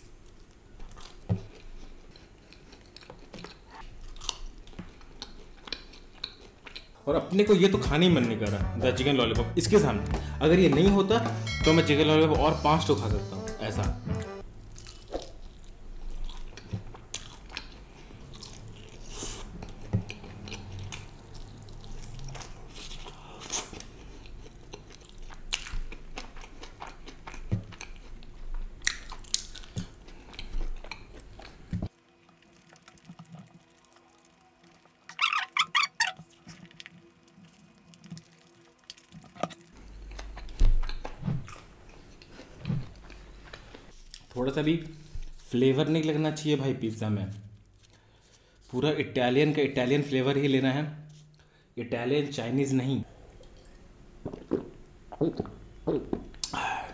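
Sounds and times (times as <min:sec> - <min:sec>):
close-up chewing and crunching: 0:00.0 - 0:07.0, 0:14.4 - 0:45.5.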